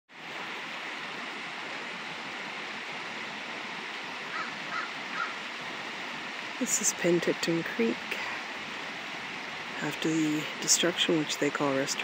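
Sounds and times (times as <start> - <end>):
creek water rushing: 0.1 - 12.0
short faint calls: 4.2 - 5.5.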